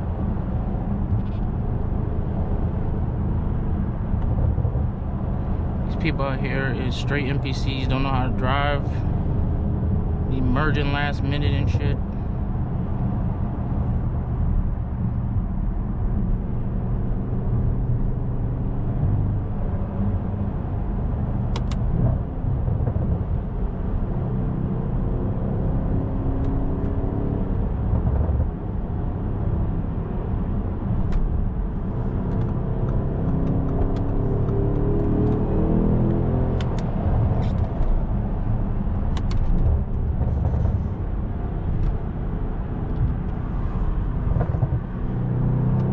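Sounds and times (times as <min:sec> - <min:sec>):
road noise: 0:00.0 - 0:45.9
car engine accelerating: 0:30.9 - 0:45.9.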